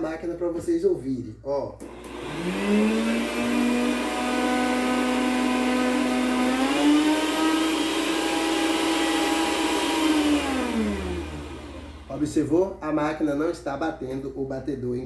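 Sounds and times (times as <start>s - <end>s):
stand mixer motor whining: 1.8s - 12.3s.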